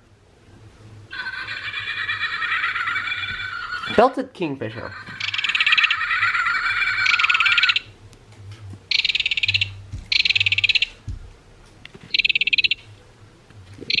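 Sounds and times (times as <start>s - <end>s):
kingfisher rattle call: 1.1s - 4.0s, 4.7s - 7.9s.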